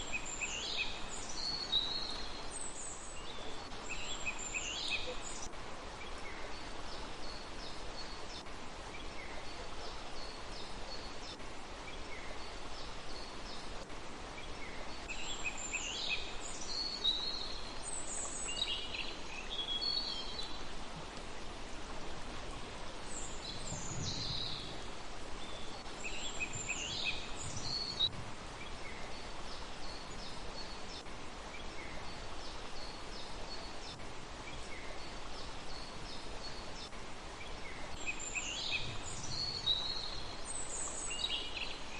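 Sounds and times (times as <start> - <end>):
background hiss: 0.0 - 41.9
small birds chirping and trilling: 23.1 - 41.9.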